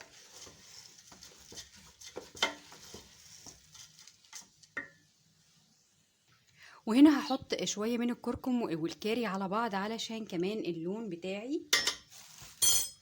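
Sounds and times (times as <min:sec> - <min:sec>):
spoon scraping a pot: 0:00.0 - 0:04.9
light sizzle: 0:00.0 - 0:13.0.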